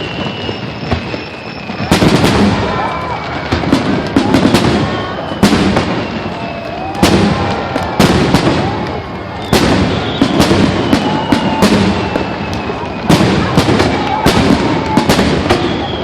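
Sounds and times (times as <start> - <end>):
firework crackling: 0.0 - 16.0.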